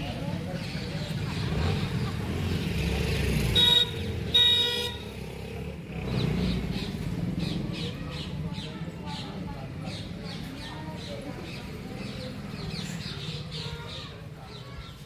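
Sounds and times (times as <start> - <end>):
low street rumble: 0.0 - 15.0
vehicle horn honking: 3.5 - 5.2.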